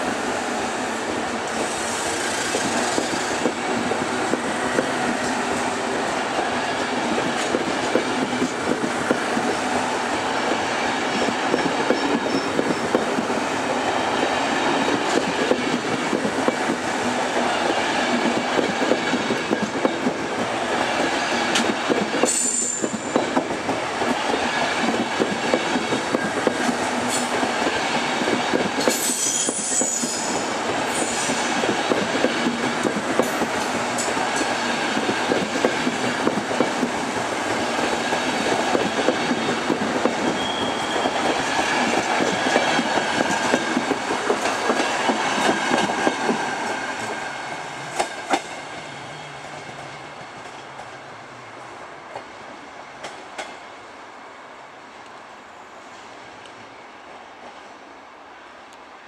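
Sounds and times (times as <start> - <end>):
train wheels clattering on track: 1.0 - 51.0, 53.0 - 53.7
high wheel squeals: 29.0 - 31.4, 40.2 - 41.2.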